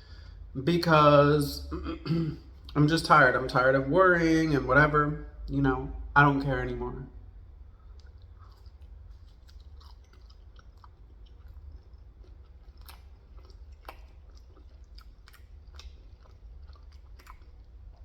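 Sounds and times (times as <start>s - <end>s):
person chewing: 1.8s - 3.5s, 7.5s - 18.0s.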